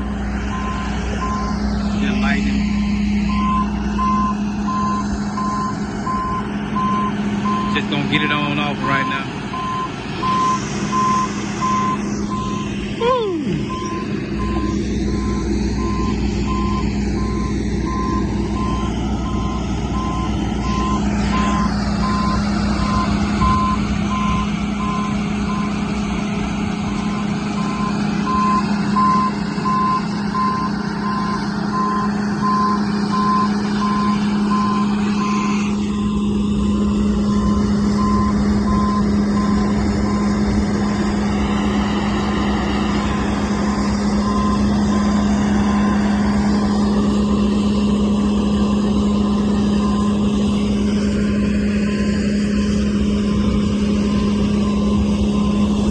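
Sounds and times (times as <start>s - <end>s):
machine engine droning: 0.0s - 55.9s
backup alarm beeping: 0.5s - 1.6s, 3.2s - 7.9s, 8.7s - 12.8s, 13.5s - 25.8s, 27.2s - 36.4s, 37.2s - 41.0s, 43.1s - 45.2s.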